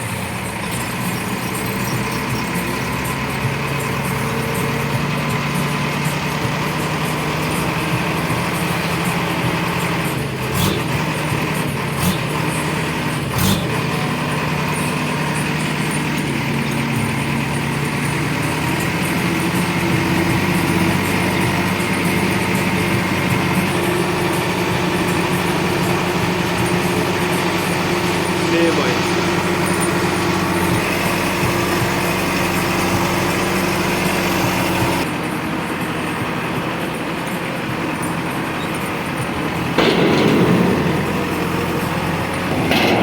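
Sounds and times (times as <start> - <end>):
diesel engine running: 0.0 - 43.0
sharp knocks: 39.8 - 43.0.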